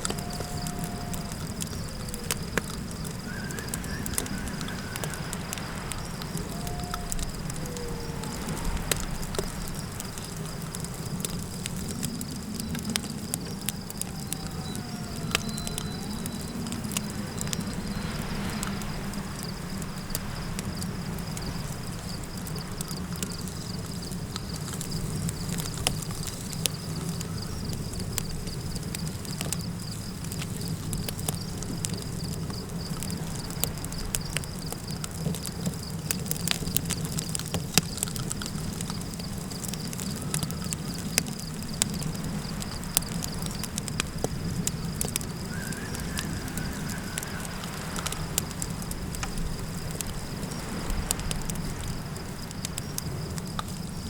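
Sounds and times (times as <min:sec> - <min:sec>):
campfire crackling and popping: 0:00.0 - 0:54.0
high insect trill: 0:00.0 - 0:54.0
low wind rumble: 0:00.0 - 0:54.0
faint wavering call: 0:03.2 - 0:09.2, 0:14.0 - 0:18.4.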